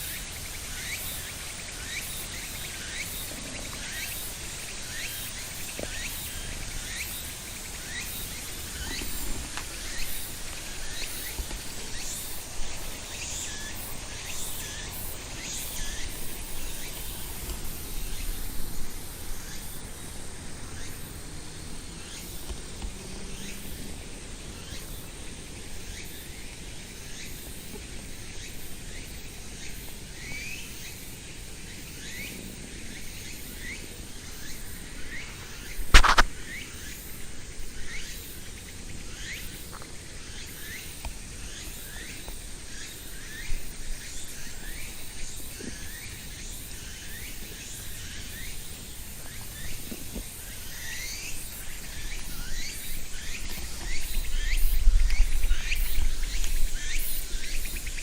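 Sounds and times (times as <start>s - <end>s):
steady high hiss: 0.0s - 58.0s
sharp knock: 35.9s - 36.3s.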